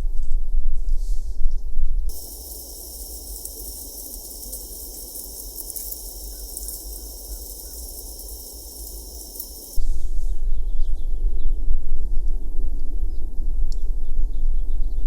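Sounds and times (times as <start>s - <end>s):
faint bird chirps: 2.1s - 9.8s
insects droning: 2.1s - 9.8s.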